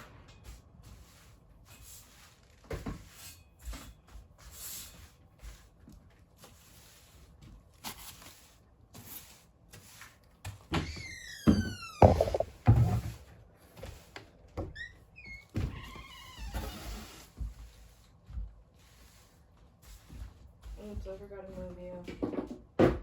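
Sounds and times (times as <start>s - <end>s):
rubbing or brushing: 0.4s - 10.3s, 16.7s - 21.5s
soft knocks and thuds: 11.5s - 13.2s.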